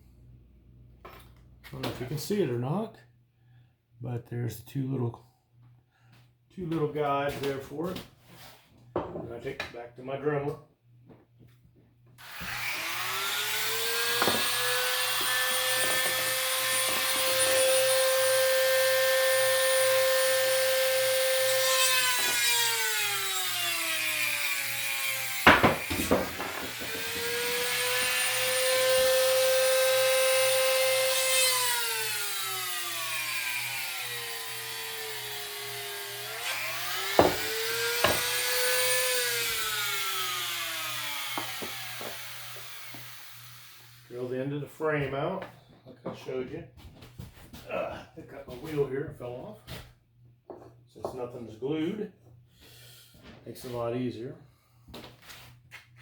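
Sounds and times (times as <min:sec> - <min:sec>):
rotary tool drilling wood: 0:12.2 - 0:44.1.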